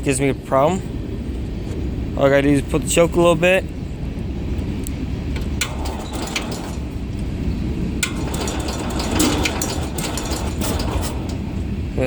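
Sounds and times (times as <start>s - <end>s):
garden tractor engine running: 5.4s - 12.0s.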